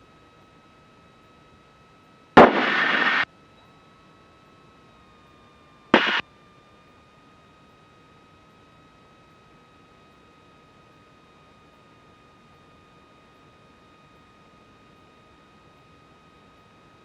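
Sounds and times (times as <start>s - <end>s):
faint hiss with thin whine: 2.4s - 3.2s, 6.0s - 6.2s
intercom click: 2.4s - 3.2s, 6.0s - 6.2s
radio static bursts: 2.4s - 3.2s, 6.0s - 6.2s.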